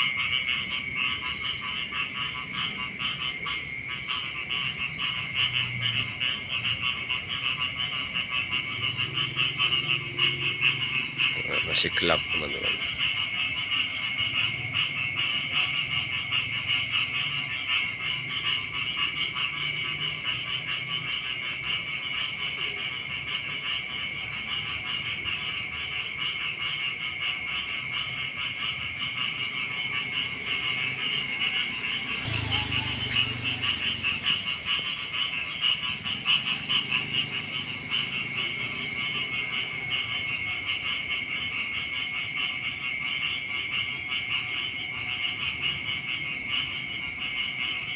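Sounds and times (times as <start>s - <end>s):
deep frog croaks: 0.0s - 47.9s
frogs trilling in chorus: 0.0s - 47.9s.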